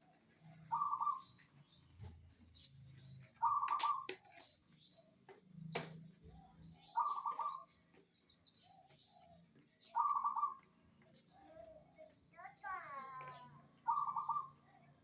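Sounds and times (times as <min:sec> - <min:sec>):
dove cooing: 0:00.6 - 0:01.3, 0:03.4 - 0:04.1, 0:06.8 - 0:07.7, 0:09.9 - 0:10.6, 0:13.2 - 0:15.0.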